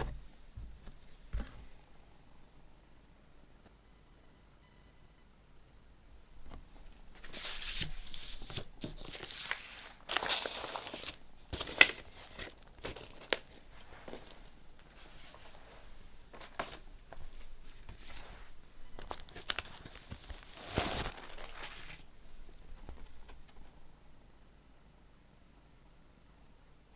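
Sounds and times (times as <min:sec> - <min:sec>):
packaging crinkling and rustling: 0:07.2 - 0:15.6, 0:16.3 - 0:18.3, 0:19.0 - 0:23.7.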